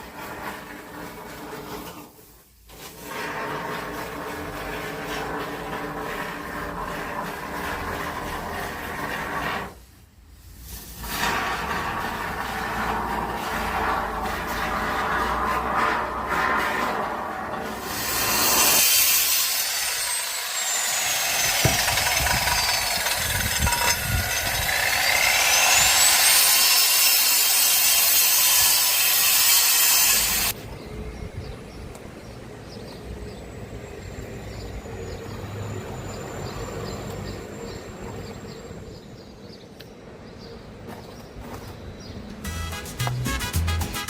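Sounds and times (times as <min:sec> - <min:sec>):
power tool cutting: 0:17.6 - 0:30.6.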